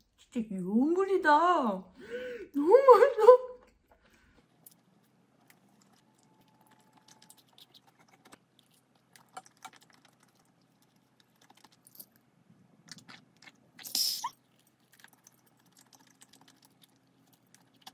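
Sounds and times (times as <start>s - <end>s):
close-up chewing: 3.9s - 12.0s, 12.8s - 17.9s.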